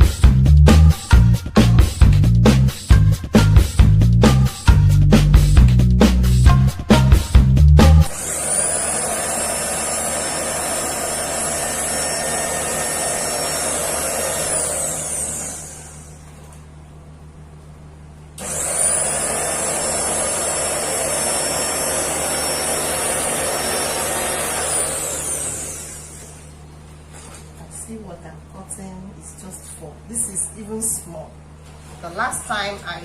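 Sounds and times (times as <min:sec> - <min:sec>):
cutting machine motor whining: 0:08.1 - 0:16.3, 0:18.4 - 0:26.6.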